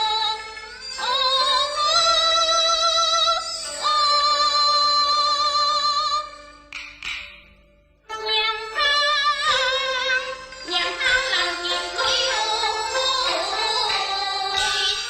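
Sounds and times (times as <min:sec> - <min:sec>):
high voice opera singing: 0:08.1 - 0:15.0.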